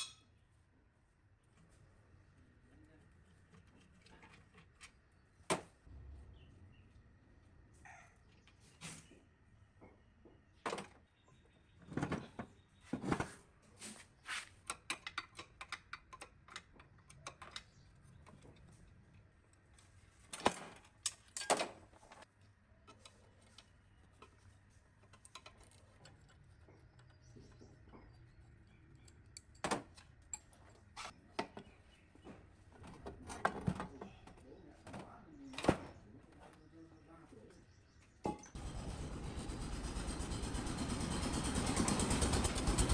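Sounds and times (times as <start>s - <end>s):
metal parts and tools clicking: 25.0s - 31.1s.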